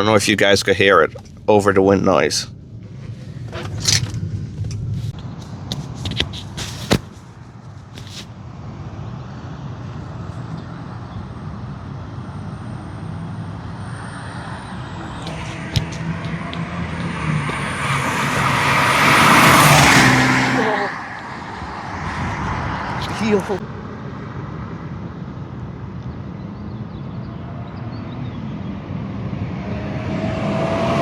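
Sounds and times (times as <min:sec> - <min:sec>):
car engine running: 0:02.8 - 0:08.3, 0:14.7 - 0:20.6
wind noise: 0:14.4 - 0:25.1.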